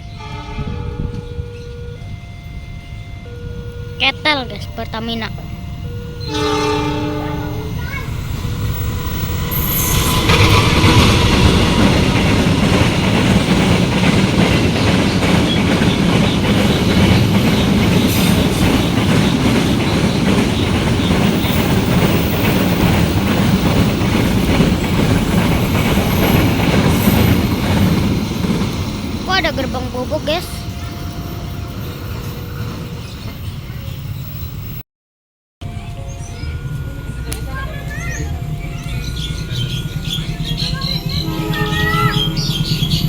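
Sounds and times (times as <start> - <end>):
train wheels clattering over rail joints: 7.8 - 30.5.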